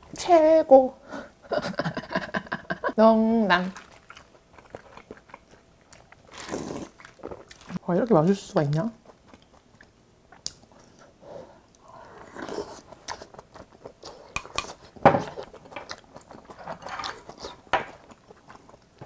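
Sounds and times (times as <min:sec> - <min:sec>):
person chewing food: 0:03.8 - 0:07.8, 0:08.7 - 0:19.0.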